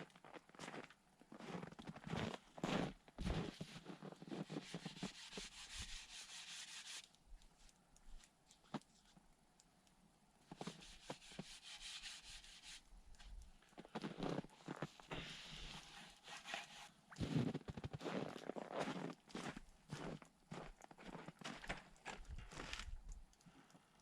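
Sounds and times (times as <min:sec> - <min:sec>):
faint rubbing and scraping: 0:02.7 - 0:08.2, 0:10.5 - 0:18.2.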